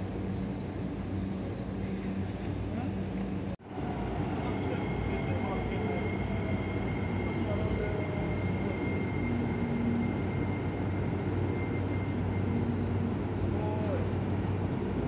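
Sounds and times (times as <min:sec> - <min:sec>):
electric train rumble and hum: 0:00.0 - 0:15.0
short falling squeal: 0:06.3 - 0:13.0.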